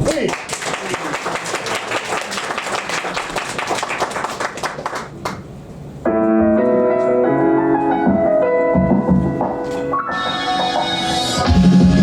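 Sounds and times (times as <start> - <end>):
audience clapping: 0.0 - 5.5
piano intro: 6.0 - 12.0.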